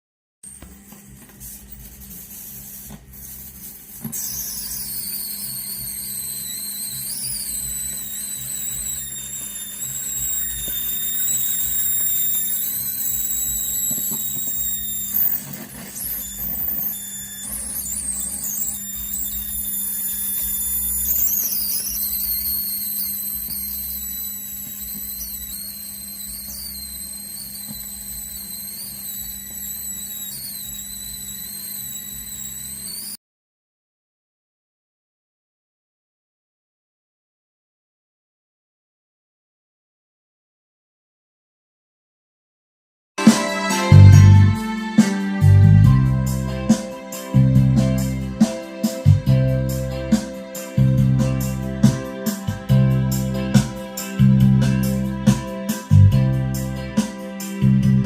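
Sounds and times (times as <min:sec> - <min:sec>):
electrical hum: 0:00.5 - 0:33.1
high wandering whistling tones: 0:04.1 - 0:33.2, 0:43.2 - 0:57.8.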